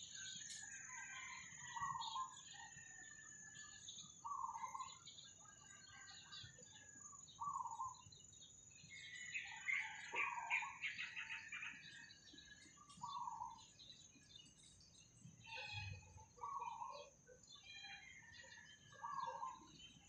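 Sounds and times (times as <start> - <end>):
high bird chirping: 3.7 - 20.0.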